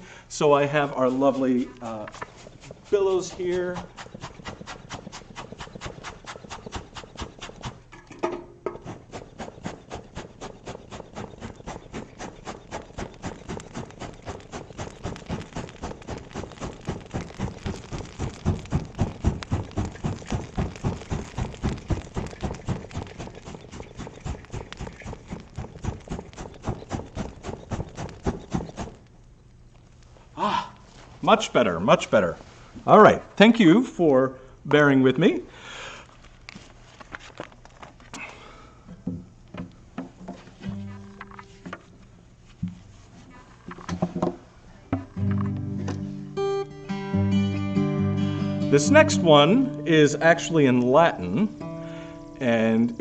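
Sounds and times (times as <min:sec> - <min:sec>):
hand bellows air puffs: 0:00.0 - 0:29.1.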